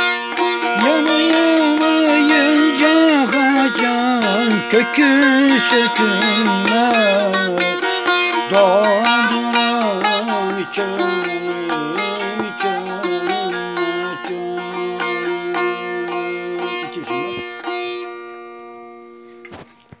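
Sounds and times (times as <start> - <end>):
plucked lute folk melody: 0.0 - 19.7.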